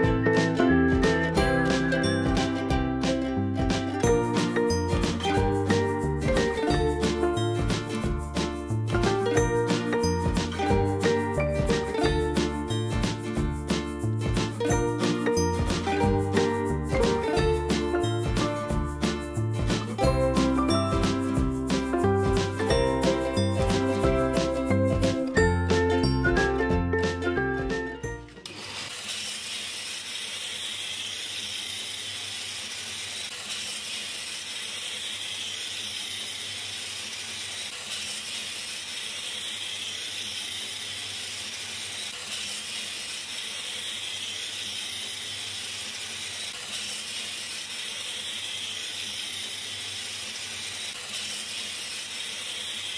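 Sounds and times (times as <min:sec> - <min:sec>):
tinkling jingle: 0:01.4 - 0:02.7.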